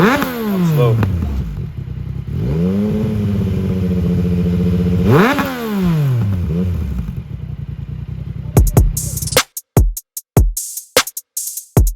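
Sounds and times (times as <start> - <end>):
car engine revving: 0.0 - 9.3.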